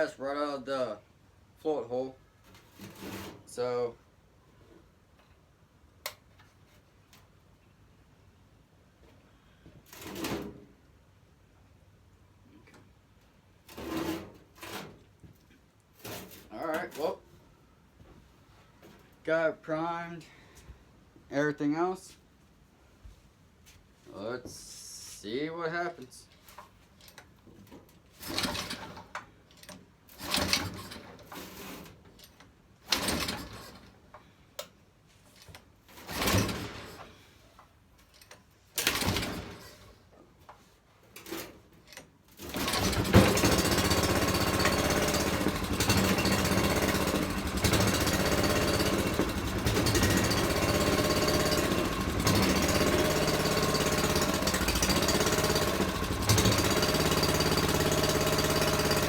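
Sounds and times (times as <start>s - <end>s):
engine pull-start cranking: 28.2s - 34.0s, 35.5s - 37.2s, 38.1s - 40.0s, 41.2s - 59.0s
small engine running: 42.4s - 59.0s.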